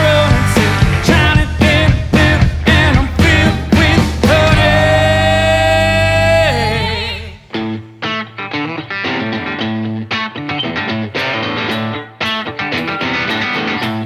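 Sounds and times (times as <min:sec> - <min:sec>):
drum hits: 0:00.0 - 0:05.4
person singing: 0:00.0 - 0:07.7
guitars: 0:00.0 - 0:14.0.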